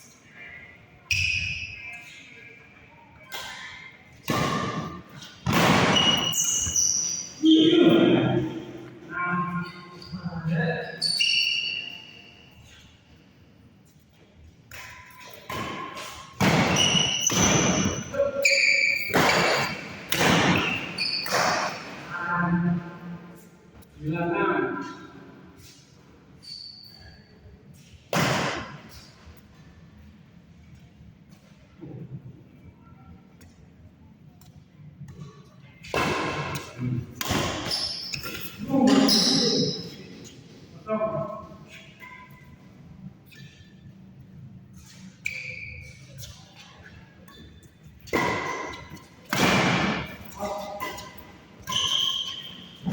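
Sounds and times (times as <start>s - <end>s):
shoes squeaking: 3.2s - 13.2s, 13.9s - 22.0s, 36.6s - 40.6s, 41.7s - 52.9s
racket strikes: 14.8s - 18.0s, 19.0s - 22.0s, 35.9s - 39.0s, 48.1s - 51.2s
racket striking shuttlecock: 19.0s - 21.8s, 35.9s - 38.4s.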